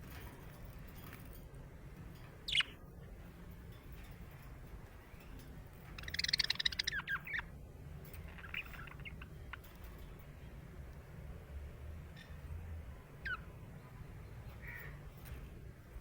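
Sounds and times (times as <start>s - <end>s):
budgerigar chirping and squawking: 6.0s - 7.5s, 8.3s - 9.7s.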